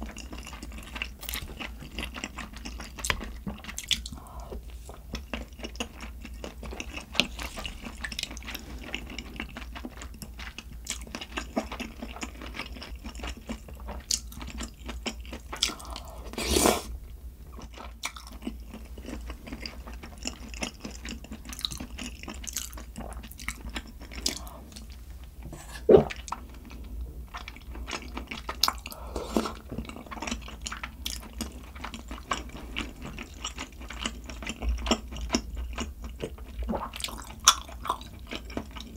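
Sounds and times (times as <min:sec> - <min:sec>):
person chewing: 0:00.0 - 0:16.9, 0:17.6 - 0:38.9.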